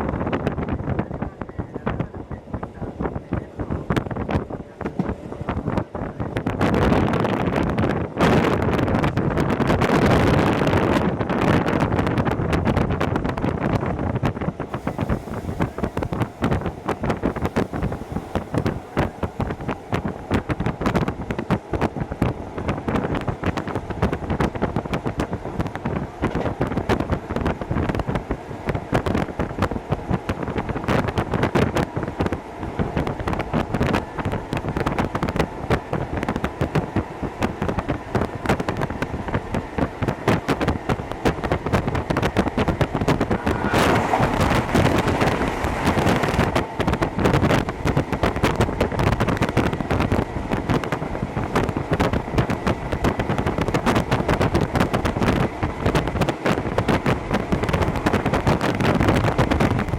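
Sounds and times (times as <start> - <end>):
wind on microphone: 0.0 - 59.9
electric train running: 14.6 - 33.3, 40.8 - 59.9
hissing with faint tone: 14.7 - 21.5.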